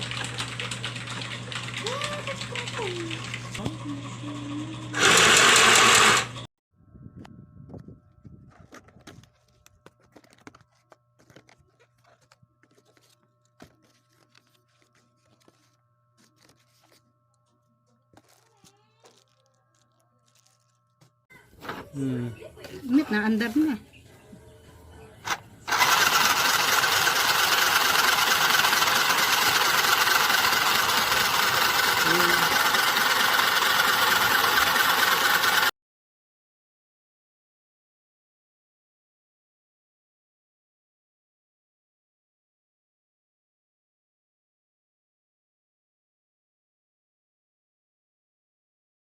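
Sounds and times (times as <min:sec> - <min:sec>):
sewing machine motor whirring: 0:00.0 - 0:06.5, 0:25.2 - 0:35.7.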